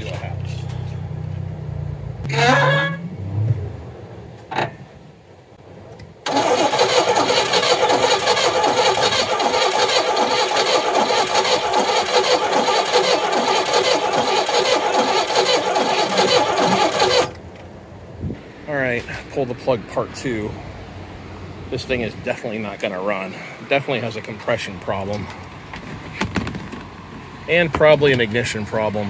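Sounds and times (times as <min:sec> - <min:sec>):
car engine cranking: 0:06.2 - 0:17.6.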